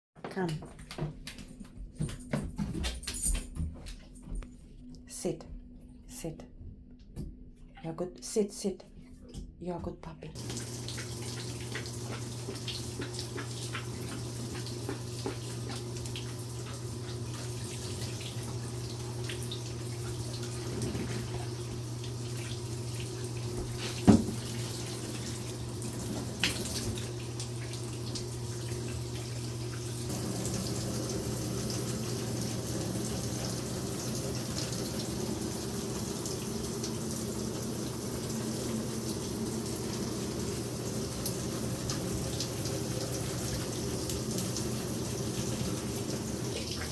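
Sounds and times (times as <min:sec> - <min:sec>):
tap water running into bathtub: 0:10.4 - 0:46.9.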